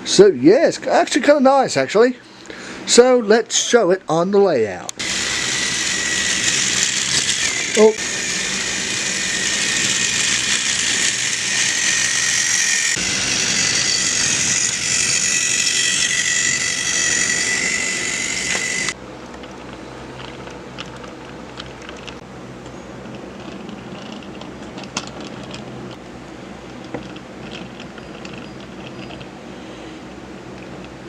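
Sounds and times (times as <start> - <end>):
toy train motor whining: 5.0 - 19.0.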